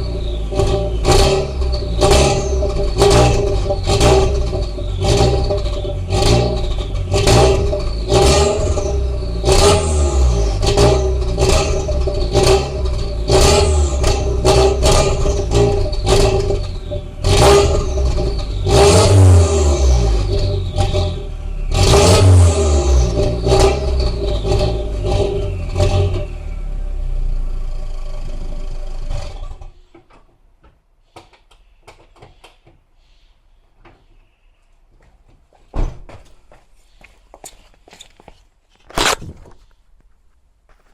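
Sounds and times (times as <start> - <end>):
car engine idling: 0.0 - 29.7
car engine revving: 0.0 - 29.7.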